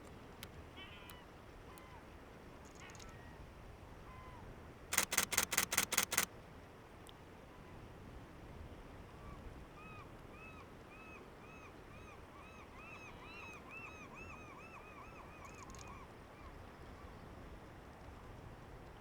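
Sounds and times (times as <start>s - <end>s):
camera shutter clicks: 4.9s - 6.3s.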